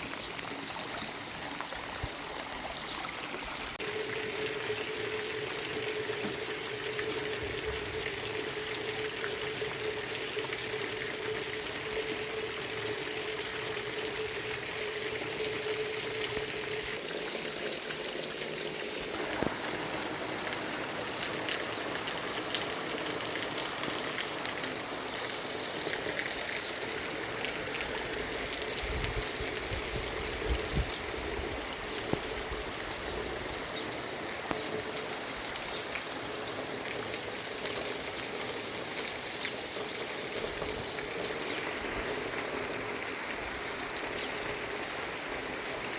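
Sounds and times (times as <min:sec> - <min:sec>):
running water: 0:00.0 - 0:45.9
heavy rain: 0:19.0 - 0:45.9.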